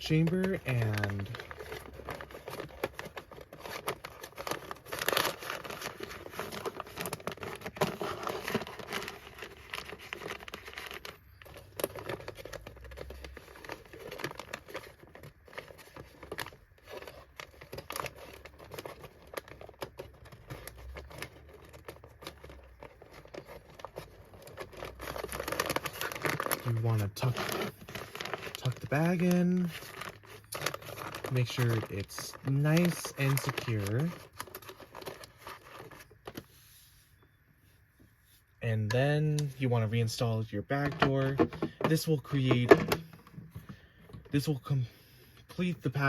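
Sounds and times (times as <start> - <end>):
vacuum bag crinkling: 0.0 - 36.6, 39.4 - 44.6.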